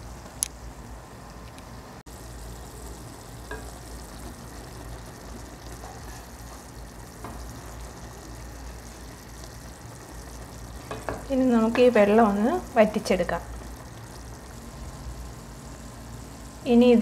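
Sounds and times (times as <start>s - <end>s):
liver and onions sizzling: 2.1s - 17.0s.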